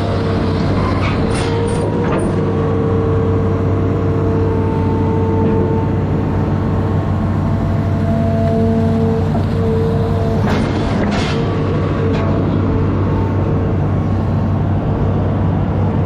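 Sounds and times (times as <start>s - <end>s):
diesel engine running under load: 0.0s - 16.0s
steady whine: 0.0s - 16.0s.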